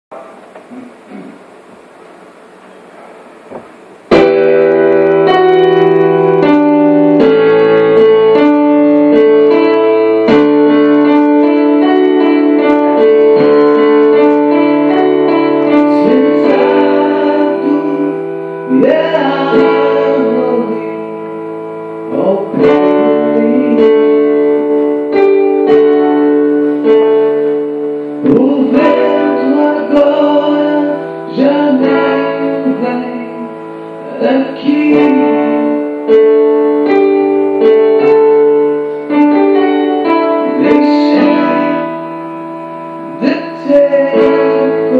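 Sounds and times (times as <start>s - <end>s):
keyboard playing sustained chords: 3.8s - 44.9s
person singing: 10.2s - 24.9s, 28.1s - 37.0s, 37.6s - 42.2s, 43.0s - 44.9s.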